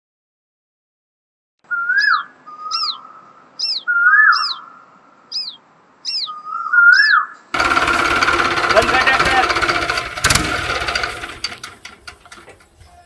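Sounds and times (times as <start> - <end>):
birds chirping: 1.6 - 10.0.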